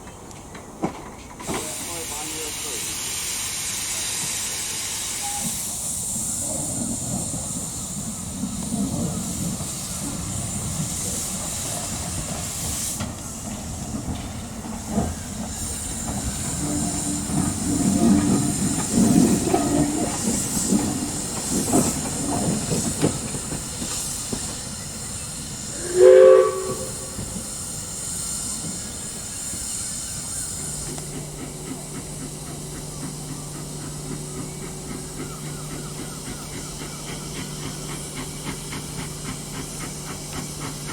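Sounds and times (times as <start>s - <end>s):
steam locomotive hissing: 0.0s - 40.9s
steam whistle blast: 5.1s - 5.6s, 25.7s - 27.6s.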